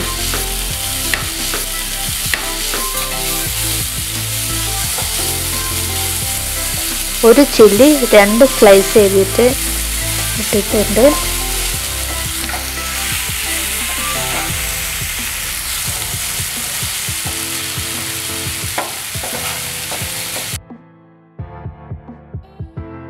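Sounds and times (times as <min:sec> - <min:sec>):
vegetables sizzling in oil: 0:00.0 - 0:20.6
spatula scraping and tapping pan: 0:18.8 - 0:20.6.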